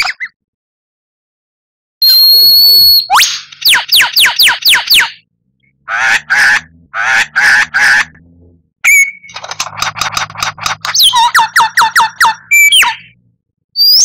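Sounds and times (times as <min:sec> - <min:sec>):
bird whistling and rattling: 0:02.0 - 0:05.2, 0:08.8 - 0:13.2, 0:13.8 - 0:14.0.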